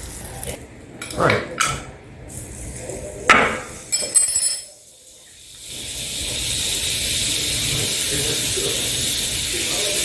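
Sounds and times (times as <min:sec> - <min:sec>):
metallic clinks: 0:03.9 - 0:04.8
fish frying in oil: 0:04.9 - 0:10.0.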